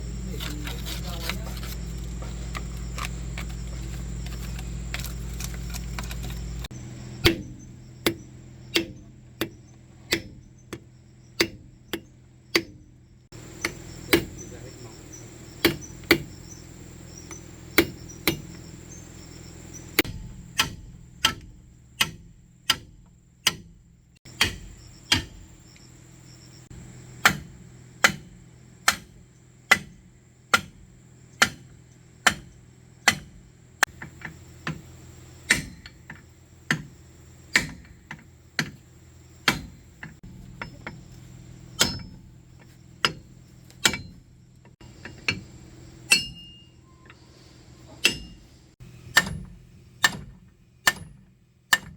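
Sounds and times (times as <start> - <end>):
hammer striking metal: 7.2 - 10.8, 20.0 - 22.9, 24.3 - 25.4, 41.8 - 42.2, 46.1 - 46.7, 48.0 - 48.5, 49.1 - 51.9.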